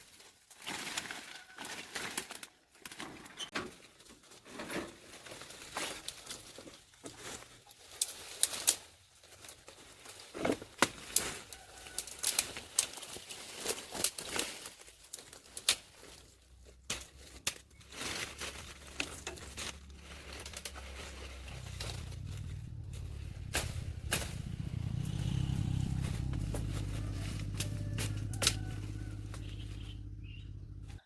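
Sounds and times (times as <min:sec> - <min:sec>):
low motor hum: 0:17.8 - 0:31.0.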